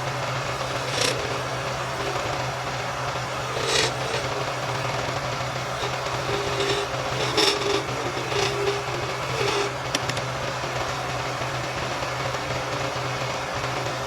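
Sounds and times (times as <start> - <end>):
turning tool scraping wood: 0.0 - 10.4
wood lathe motor hum: 0.0 - 14.0.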